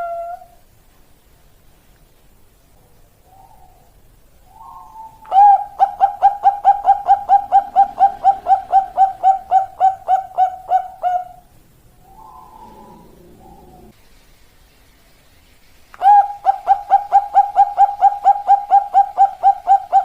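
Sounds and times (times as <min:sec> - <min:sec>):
dove cooing: 0:00.0 - 0:00.6, 0:04.5 - 0:14.0, 0:16.0 - 0:20.0.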